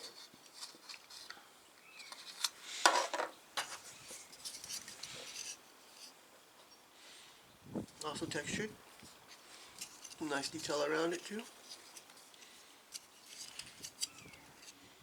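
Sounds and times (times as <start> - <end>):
plastic parts clicking and rustling: 0.0 - 6.1, 9.8 - 14.8.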